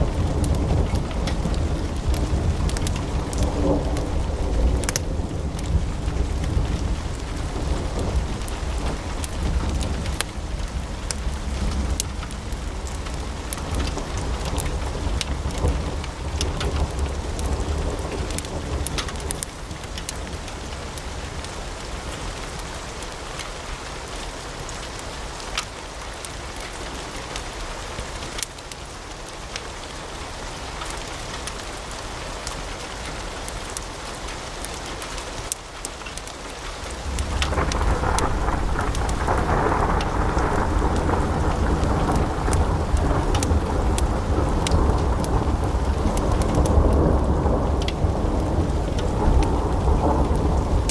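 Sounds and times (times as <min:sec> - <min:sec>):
fire crackling and popping: 0:00.0 - 0:23.2, 0:34.6 - 0:50.9
low rumble: 0:37.0 - 0:50.9.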